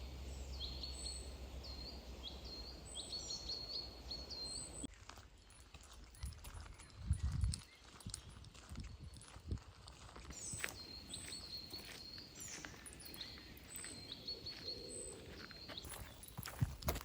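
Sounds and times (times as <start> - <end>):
small bird singing: 0.0 - 16.8
footsteps on a path: 4.8 - 17.0.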